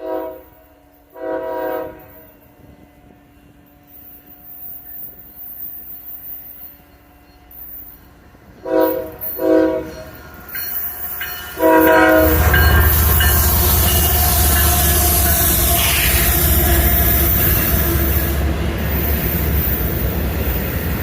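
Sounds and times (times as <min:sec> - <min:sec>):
locomotive horn blasts: 0:00.0 - 0:02.2, 0:08.6 - 0:10.1, 0:11.6 - 0:18.6
train rail noise: 0:00.0 - 0:21.0.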